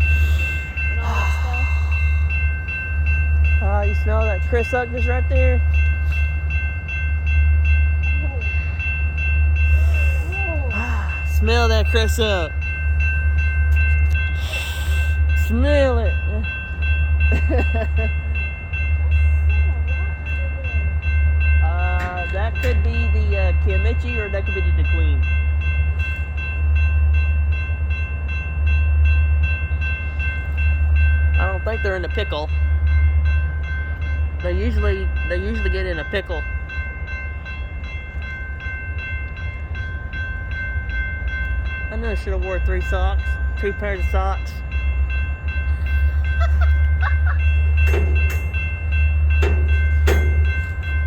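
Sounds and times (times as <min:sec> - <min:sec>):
freight train rumbling past: 0:00.0 - 0:51.0
railroad crossing bell ringing: 0:00.0 - 0:51.0.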